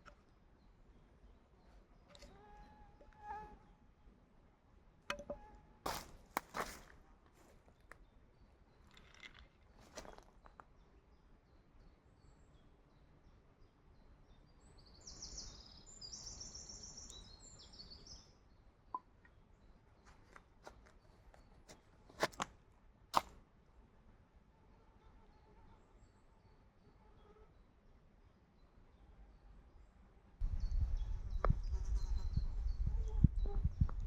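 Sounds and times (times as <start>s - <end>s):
bird singing: 10.0s - 21.7s, 28.5s - 34.0s.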